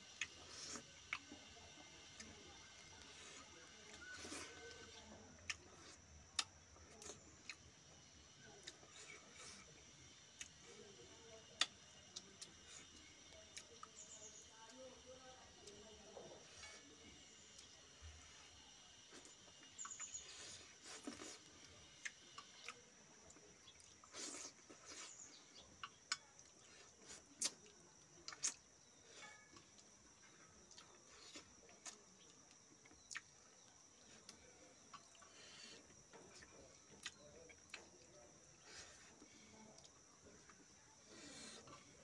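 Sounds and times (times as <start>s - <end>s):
person chewing with mouth smacks: 0.1s - 2.4s, 19.1s - 28.6s, 30.6s - 41.9s.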